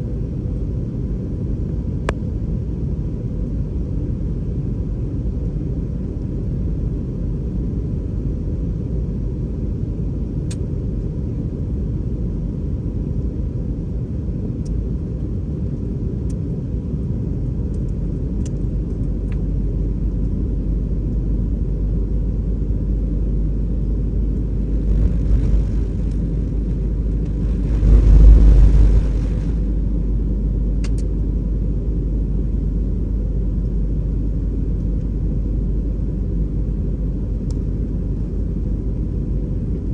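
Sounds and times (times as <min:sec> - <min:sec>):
airliner engine rumble: 0:00.0 - 0:39.9
rushing air surge: 0:24.6 - 0:30.2.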